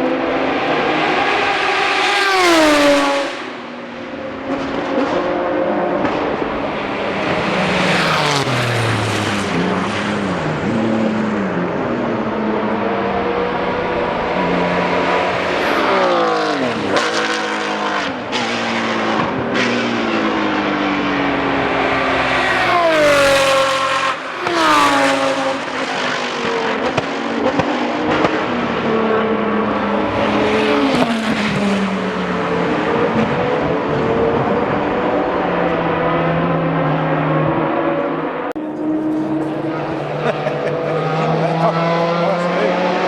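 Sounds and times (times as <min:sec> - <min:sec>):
race cars passing at speed: 0:00.0 - 0:43.0.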